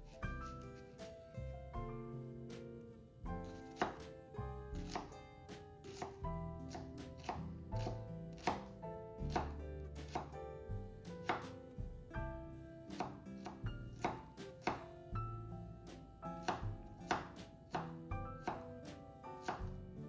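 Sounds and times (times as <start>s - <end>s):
background music: 0.0s - 20.0s
knife chopping on cutting board: 3.4s - 5.2s, 5.8s - 10.4s, 11.1s - 11.7s, 12.9s - 15.1s, 16.3s - 20.0s.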